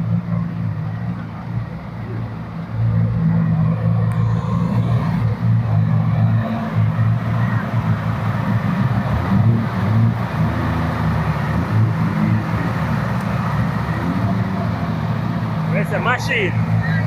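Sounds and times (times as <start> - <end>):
car engine running: 0.0 - 17.0
faint voices: 15.6 - 17.0.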